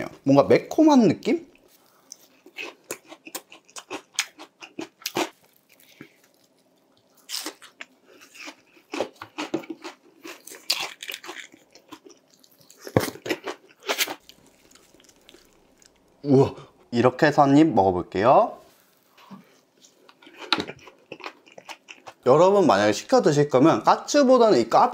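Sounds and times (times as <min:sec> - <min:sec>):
crunchy chewing: 0:01.5 - 0:16.2, 0:19.8 - 0:22.2.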